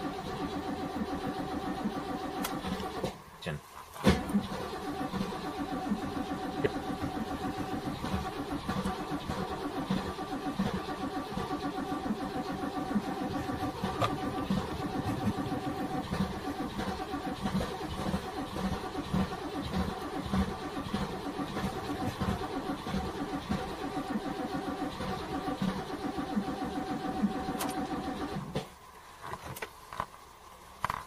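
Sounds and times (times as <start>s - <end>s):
car engine idling unevenly: 0.0s - 31.0s.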